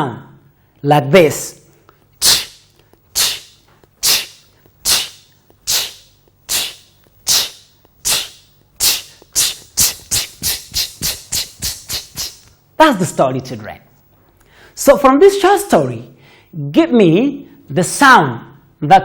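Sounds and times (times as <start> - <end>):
person imitating a train: 2.2 - 12.5.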